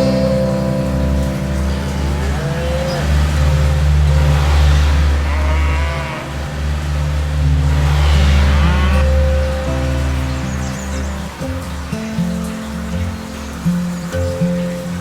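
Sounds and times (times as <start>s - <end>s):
cattle mooing: 1.2s - 10.8s.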